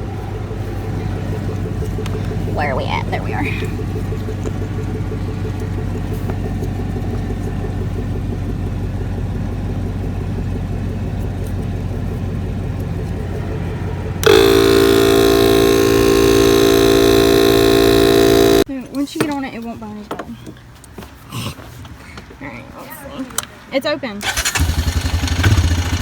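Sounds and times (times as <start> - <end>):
vehicle engine rumbling: 0.0 - 18.7, 24.2 - 26.0
loud steady tone: 2.4 - 3.7, 14.2 - 18.7.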